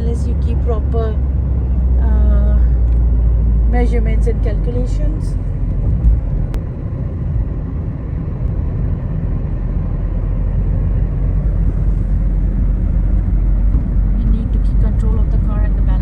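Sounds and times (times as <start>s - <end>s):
car driving interior rumble: 0.0s - 16.0s.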